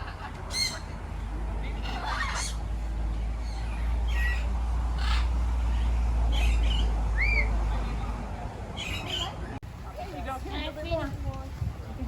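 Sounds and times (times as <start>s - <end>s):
parrots squawking: 0.0s - 1.0s, 1.7s - 2.7s, 3.4s - 7.6s, 8.7s - 9.5s.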